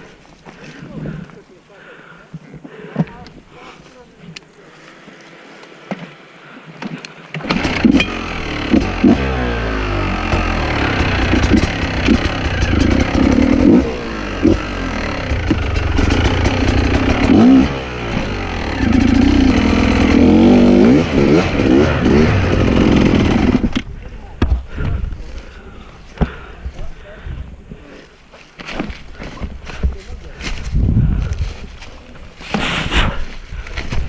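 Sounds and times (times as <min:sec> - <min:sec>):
dirt bike engine revving: 0:07.4 - 0:23.8.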